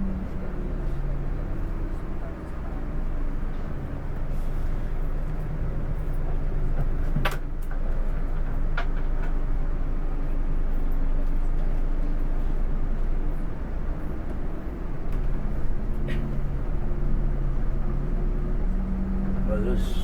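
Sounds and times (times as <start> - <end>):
coach engine and road drone: 0.0 - 20.0.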